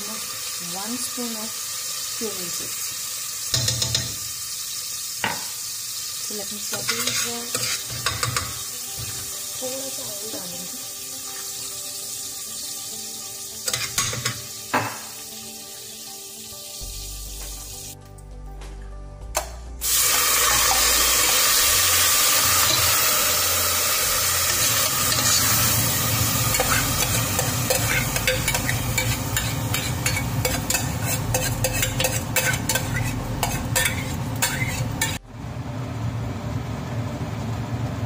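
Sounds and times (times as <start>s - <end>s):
ghee sizzling in a pot: 0.0s - 18.0s, 19.8s - 35.7s
spoon scraping a pot: 6.7s - 8.6s, 24.5s - 25.7s, 26.5s - 35.2s.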